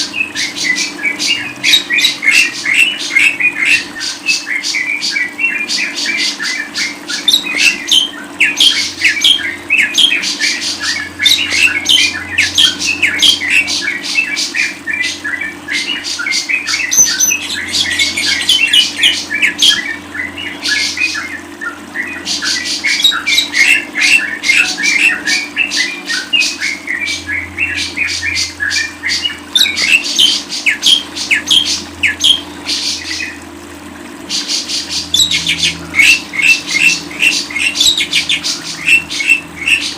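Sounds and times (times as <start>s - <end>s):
lovebird chirping and squawking: 15.8s - 19.8s, 34.4s - 39.9s.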